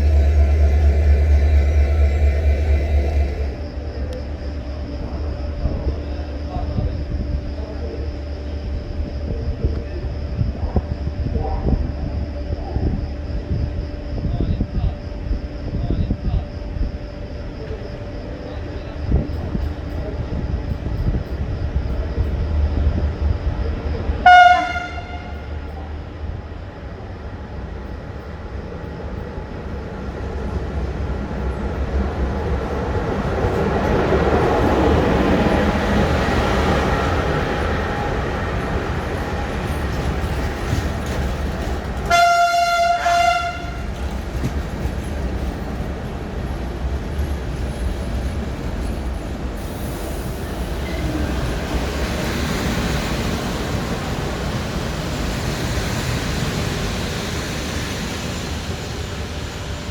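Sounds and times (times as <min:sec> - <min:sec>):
train horn blast: 0:00.0 - 0:03.7, 0:24.2 - 0:25.6, 0:42.0 - 0:44.1
train rumbling: 0:00.0 - 0:59.9.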